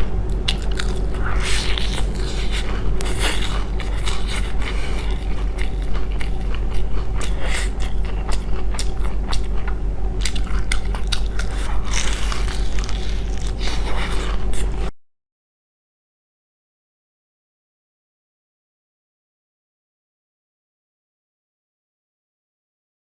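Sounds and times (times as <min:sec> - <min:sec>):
crunchy chewing: 0:00.0 - 0:14.9
steady low hum: 0:00.0 - 0:15.0.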